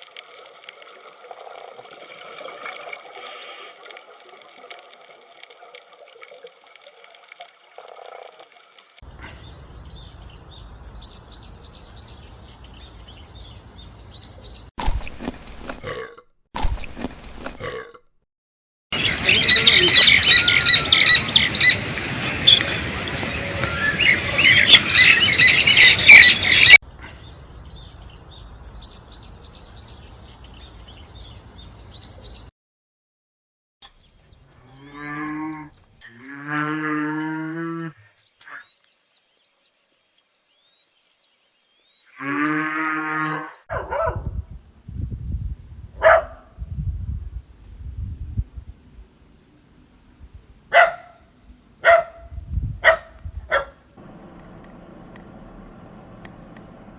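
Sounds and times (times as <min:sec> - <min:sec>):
birds chirping: 0:18.9 - 0:32.5, 0:43.6 - 0:44.3, 0:46.0 - 0:46.5, 0:50.7 - 0:53.8
cow mooing: 0:34.6 - 0:38.0, 0:42.2 - 0:43.6.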